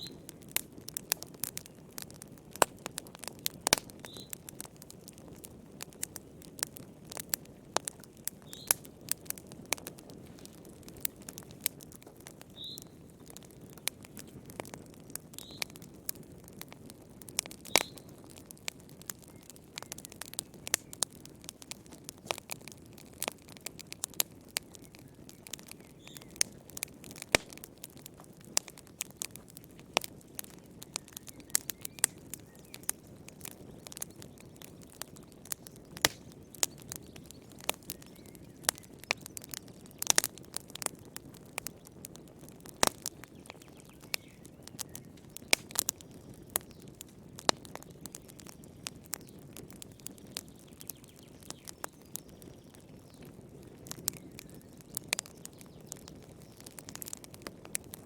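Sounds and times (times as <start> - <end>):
low rush of flames: 0.0 - 50.8
wood fire crackling and popping: 0.0 - 58.0.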